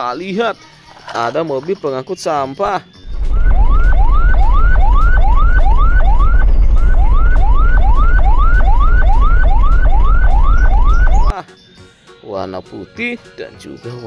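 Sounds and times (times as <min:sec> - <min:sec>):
electronic siren whooping: 0:03.1 - 0:11.3
loud low rumble: 0:03.1 - 0:11.3.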